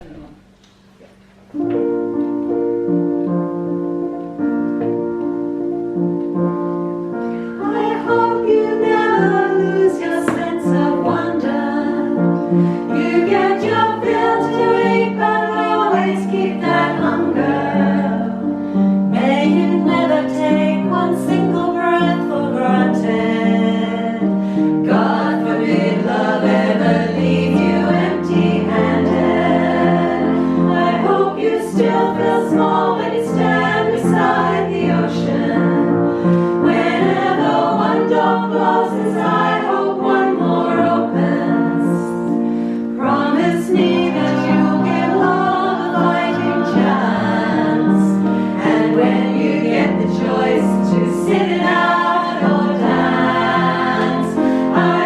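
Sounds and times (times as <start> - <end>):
keyboard chords: 0.0 - 55.0
choir singing: 7.4 - 55.0.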